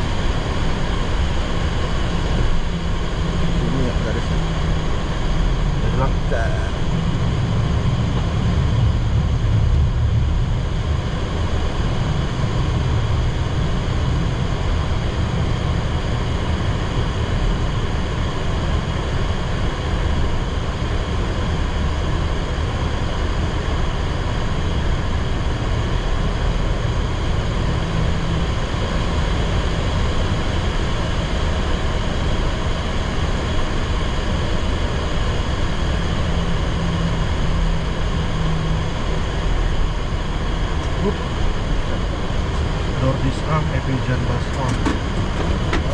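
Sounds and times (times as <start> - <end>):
jet engines running: 0.0 - 45.9
low rumble and rush of air: 0.0 - 45.9.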